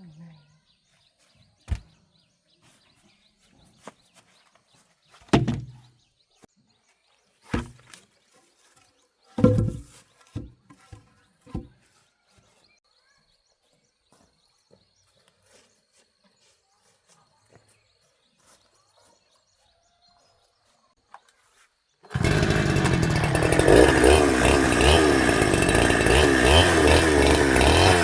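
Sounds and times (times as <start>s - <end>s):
wood thudding onto truck: 1.7s - 1.9s, 5.3s - 5.8s, 7.6s - 7.9s, 9.4s - 10.5s.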